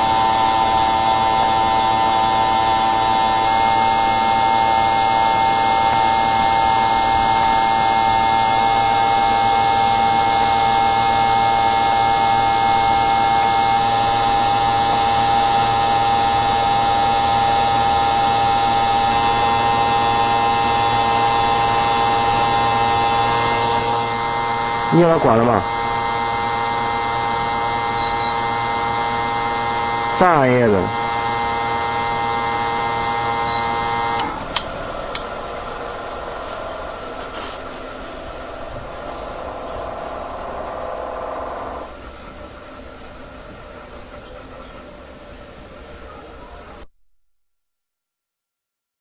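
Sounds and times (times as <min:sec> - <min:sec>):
machine whining: 0:00.0 - 0:46.9
noisy hum: 0:00.0 - 0:46.9.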